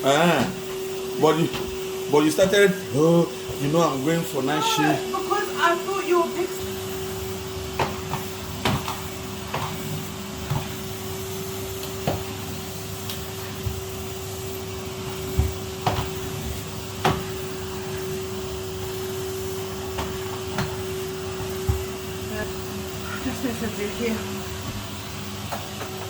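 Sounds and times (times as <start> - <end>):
vacuum cleaner humming: 0.0 - 26.0.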